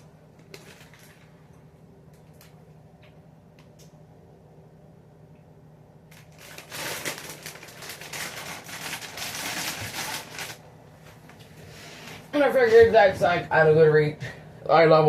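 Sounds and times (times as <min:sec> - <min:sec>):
packaging crinkling: 0:00.4 - 0:01.4, 0:06.1 - 0:11.4.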